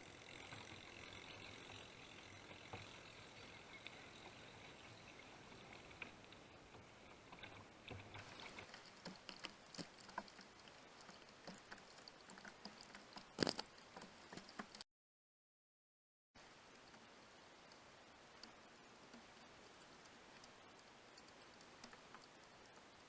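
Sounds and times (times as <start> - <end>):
water pattering around a kayak: 0.0 - 14.8, 16.4 - 23.0.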